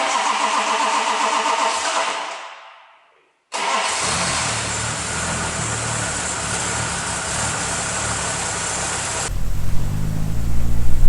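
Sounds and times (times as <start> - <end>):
car engine idling: 4.6 - 11.0.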